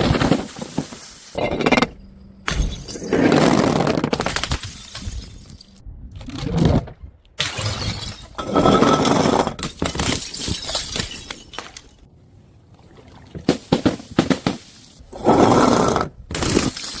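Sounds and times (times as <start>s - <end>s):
glass bottles shattering: 2.4s - 5.8s, 7.4s - 12.0s, 16.3s - 17.0s
clinking glass shards: 9.7s - 12.0s, 16.4s - 17.0s.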